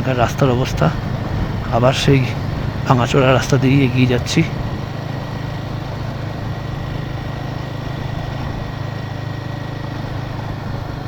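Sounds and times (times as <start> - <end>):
wind noise on microphone: 0.0 - 3.8
motorcycle engine running: 0.0 - 11.0
road noise: 0.0 - 11.0.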